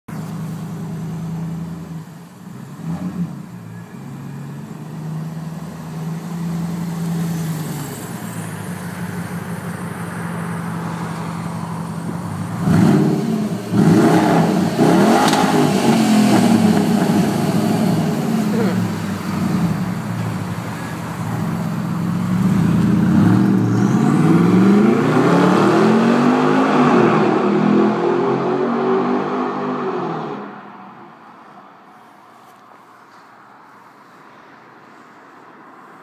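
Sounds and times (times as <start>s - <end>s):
car engine idling: 0.1s - 2.8s, 3.4s - 23.7s
car engine revving: 9.8s - 30.5s.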